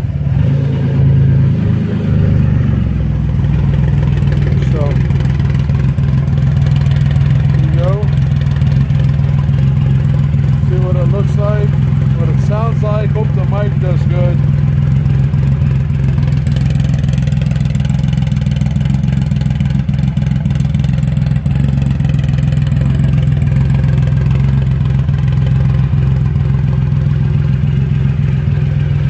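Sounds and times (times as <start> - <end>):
motorcycle idling: 0.0 - 0.4, 1.0 - 29.0.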